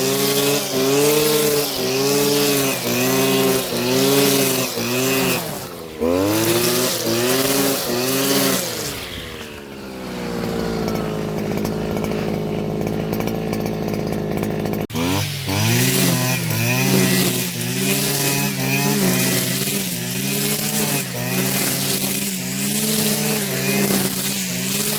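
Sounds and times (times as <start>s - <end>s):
string trimmer engine revving: 0.0s - 24.9s.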